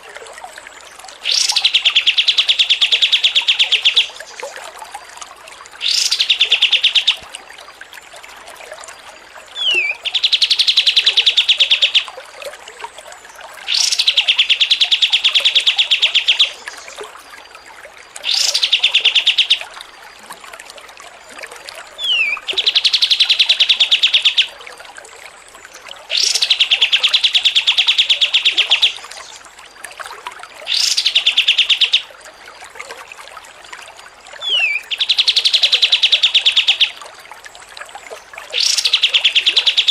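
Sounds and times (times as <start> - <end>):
songbird trilling: 1.2 - 4.4, 5.8 - 7.2, 9.6 - 12.1, 13.7 - 17.0, 18.2 - 19.6, 22.0 - 24.5, 26.1 - 29.4, 30.7 - 32.1, 34.4 - 37.0, 38.6 - 39.9.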